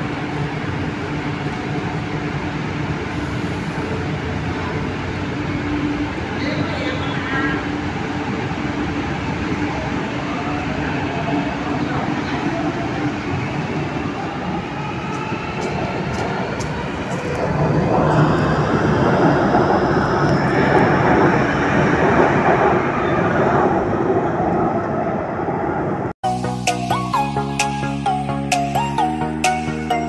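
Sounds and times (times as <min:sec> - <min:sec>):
electric train running: 0:00.0 - 0:24.0.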